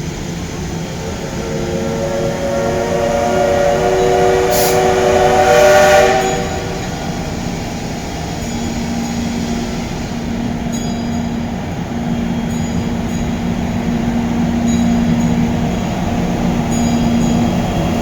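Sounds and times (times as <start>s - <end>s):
low hum: 0.0s - 7.9s
train rumbling moving off: 0.0s - 18.0s
train horn blast: 0.5s - 8.0s.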